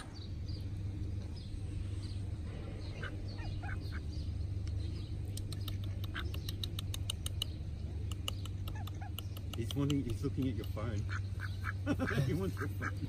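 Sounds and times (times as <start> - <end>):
birds chirping and calling: 0.0 - 13.0
steady low rumble: 0.0 - 13.0
rapid sharp clicks: 4.6 - 10.8.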